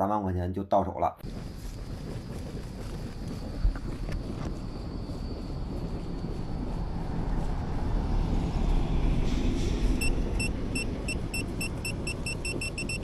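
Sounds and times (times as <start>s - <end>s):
low rumbling background noise: 1.2s - 13.0s
leak detector beeping: 10.0s - 13.0s.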